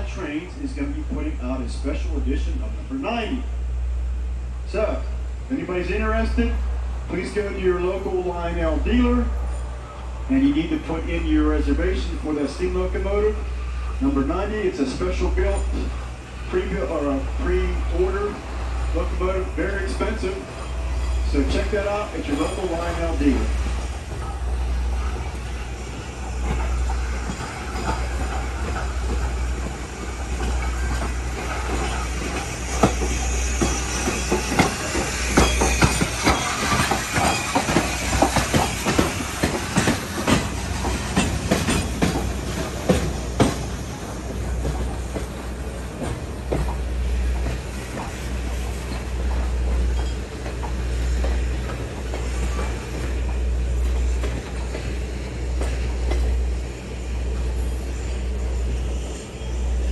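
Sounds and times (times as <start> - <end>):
train rumbling: 0.0 - 59.9
wheels clacking over rail joints: 14.4 - 58.5.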